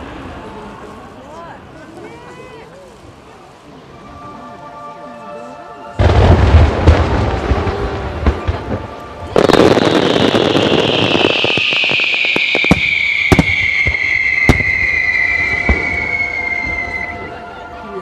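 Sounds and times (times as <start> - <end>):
fireworks booming: 6.0 - 17.4
fireworks bursts with sharp cracks: 6.0 - 17.4
high hiss falling in pitch: 9.4 - 17.2.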